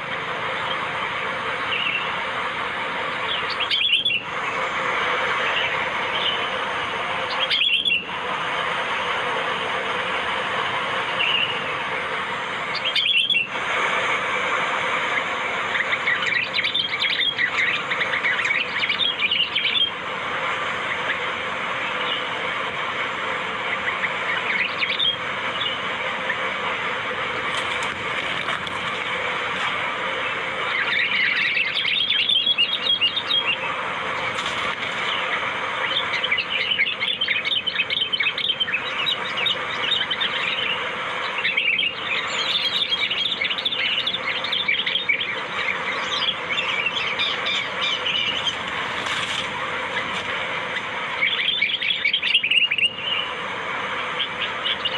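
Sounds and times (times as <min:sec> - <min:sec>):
background birdsong: 0:00.0 - 0:54.9
rapid chattering bird chirps: 0:00.5 - 0:02.2, 0:03.0 - 0:06.6, 0:07.2 - 0:08.1, 0:12.6 - 0:13.5, 0:15.1 - 0:20.0, 0:23.6 - 0:29.5, 0:30.2 - 0:53.4, 0:54.1 - 0:54.9.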